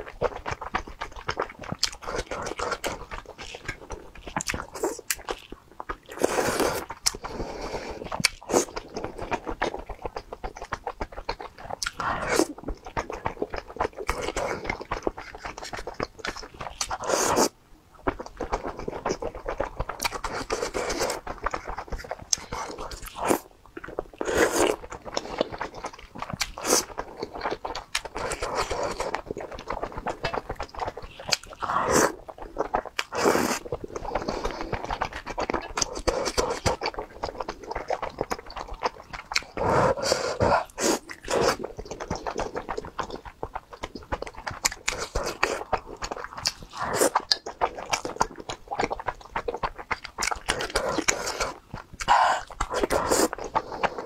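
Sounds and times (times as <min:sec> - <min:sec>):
close chewing: 0:00.0 - 0:54.0
wet mouth clicks and smacks: 0:40.6 - 0:54.0.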